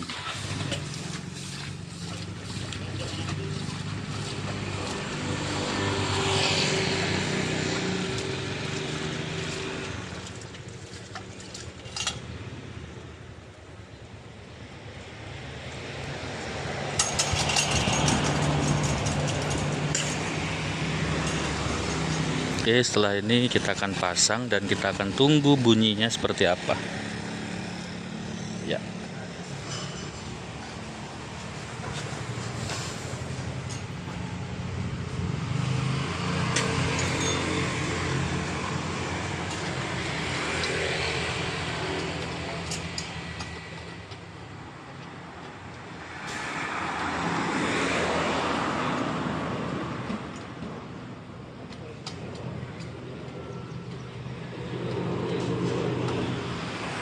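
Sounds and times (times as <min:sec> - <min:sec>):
sharp clicks and rattles: 0:17.0 - 0:20.4.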